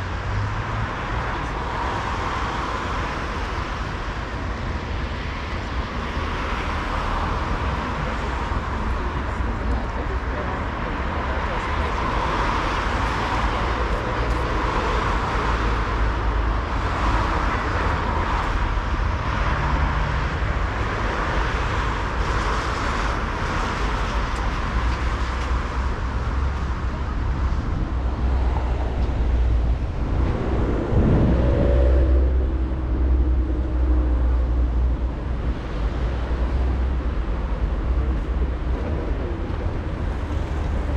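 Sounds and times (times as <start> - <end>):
rumble of passing cars: 0.0 - 40.9
vehicle passing close: 28.6 - 34.7.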